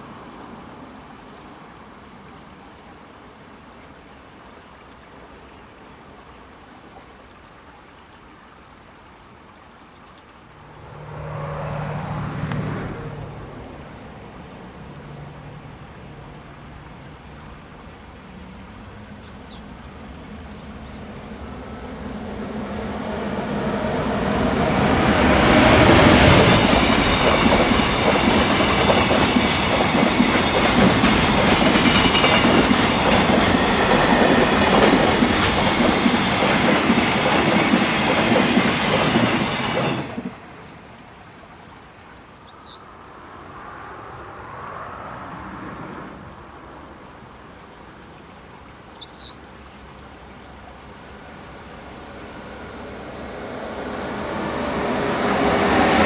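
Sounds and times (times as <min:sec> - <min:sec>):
freight train passing: 0:10.6 - 0:15.4, 0:20.0 - 0:40.8, 0:51.0 - 0:56.0.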